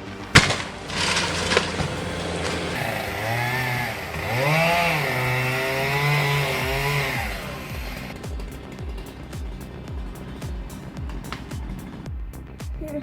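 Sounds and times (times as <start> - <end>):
chainsaw engine revving: 0.0 - 12.1
sharp bang: 0.4 - 2.9.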